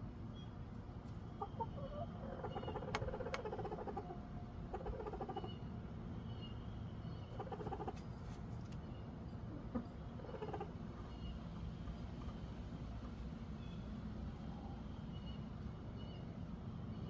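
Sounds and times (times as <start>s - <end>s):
chickens clucking: 1.1s - 5.7s, 7.2s - 8.8s, 9.4s - 13.2s.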